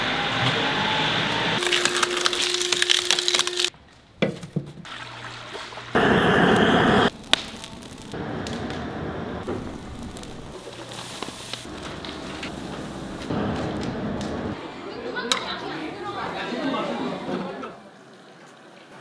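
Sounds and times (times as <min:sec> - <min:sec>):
firewood crackling: 0:01.6 - 0:03.8, 0:06.0 - 0:14.6
loud rushing noise: 0:06.0 - 0:07.1.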